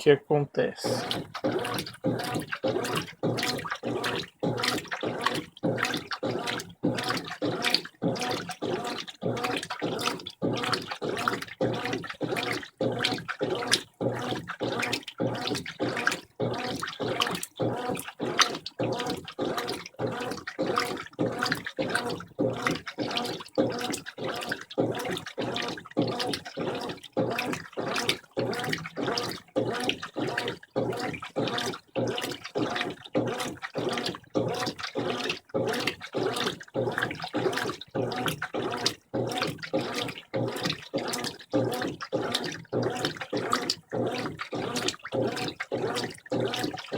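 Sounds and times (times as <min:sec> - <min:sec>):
washing machine sloshing water: 0:00.0 - 0:46.9.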